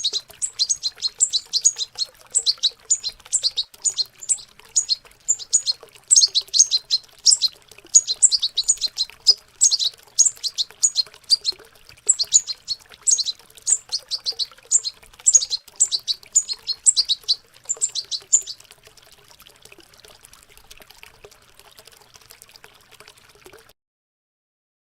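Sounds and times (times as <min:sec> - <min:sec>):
birds twittering: 0:00.0 - 0:18.6
faint running water: 0:00.0 - 0:23.7.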